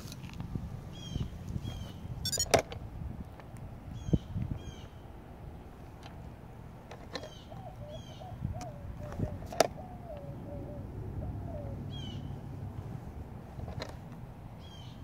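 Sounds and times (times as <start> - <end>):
high bird chirps: 2.2 - 2.5
wavering cooing: 7.6 - 12.0.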